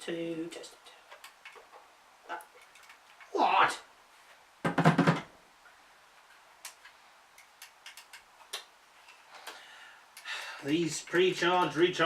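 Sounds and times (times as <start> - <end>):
plastic toy clicks: 7.4 - 8.3.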